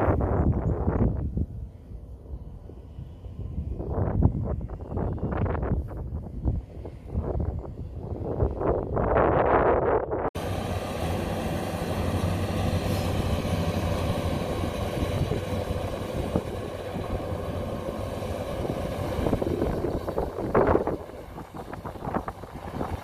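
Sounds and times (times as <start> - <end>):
wind noise on microphone: 0.0 - 10.4, 12.8 - 23.0
combine harvester engine drone: 10.4 - 23.0
faint steady whine: 10.4 - 23.0.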